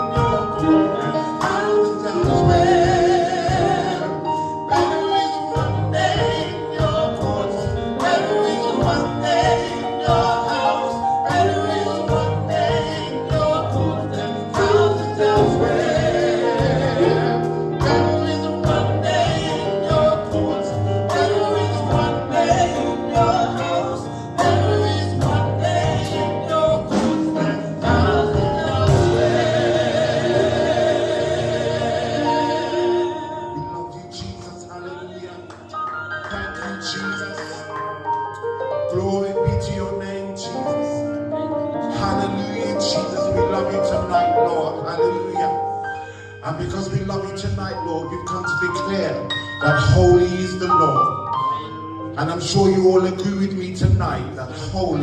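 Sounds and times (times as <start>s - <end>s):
people singing: 0.0s - 37.7s, 41.9s - 45.5s
gospel band playing: 0.0s - 55.0s.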